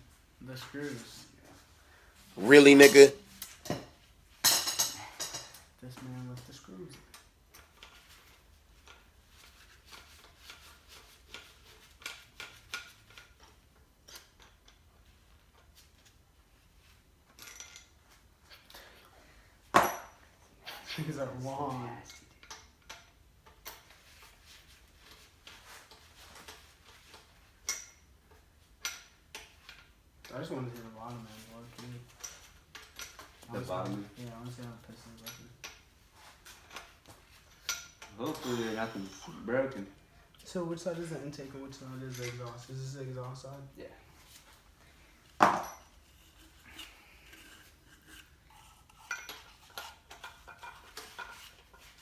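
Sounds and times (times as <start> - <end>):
metal tools clinking and scraping: 36.5 - 39.4, 45.4 - 52.0.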